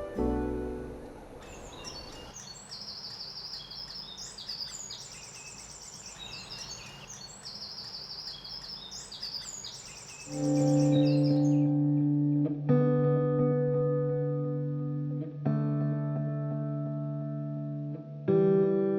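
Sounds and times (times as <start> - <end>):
music: 0.0 - 1.3, 10.4 - 18.9
faint outdoor background: 0.0 - 18.9
songbird singing trilled phrases: 1.4 - 11.7.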